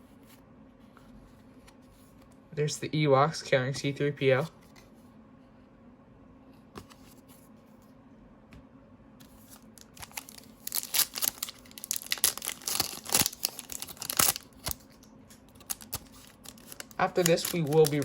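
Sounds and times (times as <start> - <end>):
quiet room hum: 0.0 - 18.0
foil wrapper tearing and crinkling: 9.6 - 18.0.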